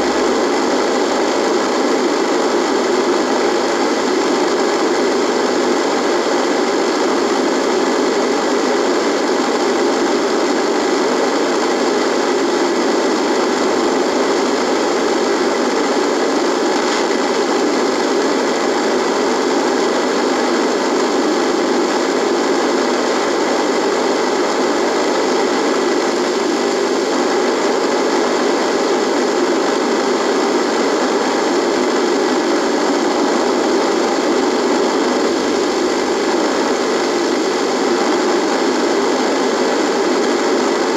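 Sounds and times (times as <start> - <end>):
radio static buzzing: 0.0 - 40.9.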